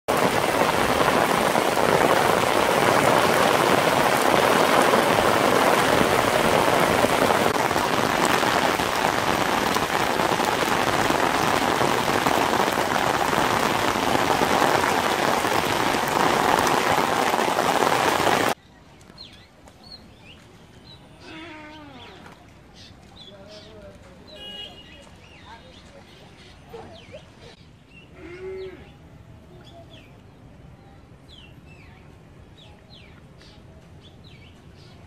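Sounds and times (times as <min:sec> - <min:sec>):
heavy rain on standing water: 0:00.1 - 0:18.6.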